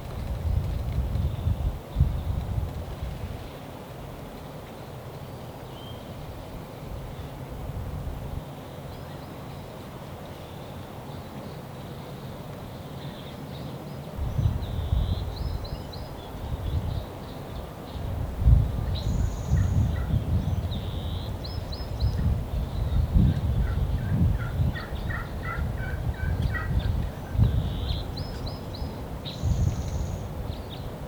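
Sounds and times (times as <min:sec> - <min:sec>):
low rumbling on microphone: 0:14.2 - 0:17.1, 0:18.0 - 0:30.9.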